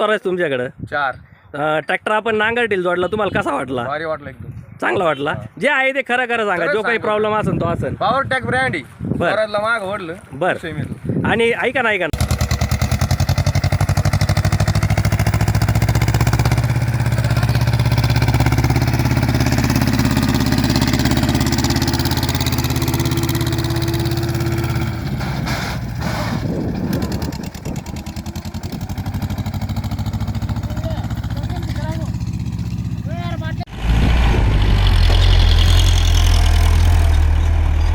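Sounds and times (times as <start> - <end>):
tractor diesel engine under load: 12.2 - 37.9.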